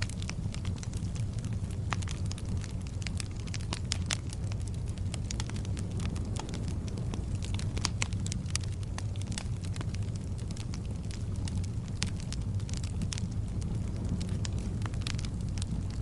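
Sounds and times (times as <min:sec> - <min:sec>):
burning logs crackling and popping: 0:00.0 - 0:16.0
wood fire rumbling: 0:00.0 - 0:16.0.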